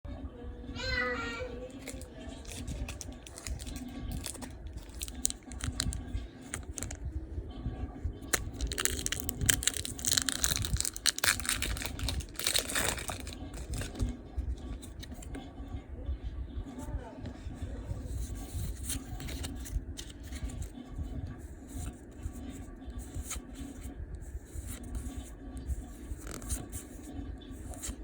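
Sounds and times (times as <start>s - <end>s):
foil wrapper crinkling and tearing: 1.8s - 7.0s, 8.2s - 14.0s.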